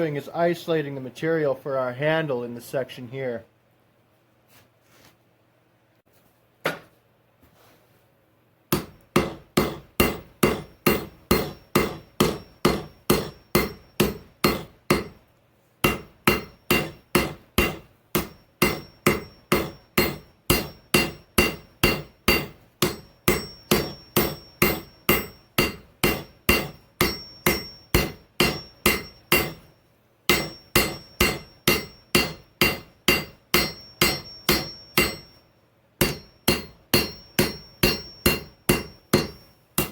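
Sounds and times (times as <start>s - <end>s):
hammer striking steel on anvil: 8.7s - 15.2s, 15.8s - 39.9s.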